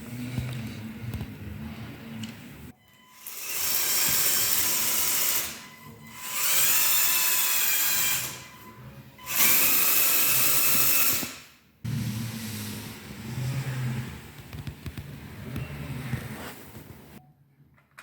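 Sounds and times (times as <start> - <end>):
toy electric motors whirring: 3.1 - 8.7, 9.3 - 11.6.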